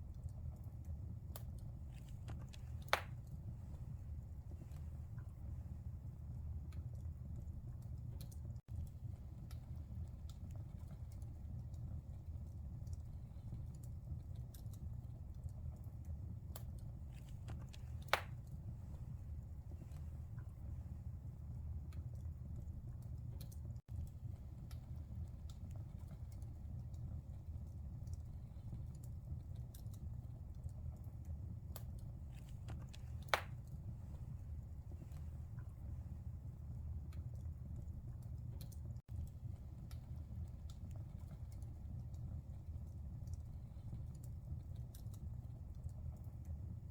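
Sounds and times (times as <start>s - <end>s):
crackles and pops of fire: 0.0s - 46.9s
wood fire burning: 0.0s - 46.9s.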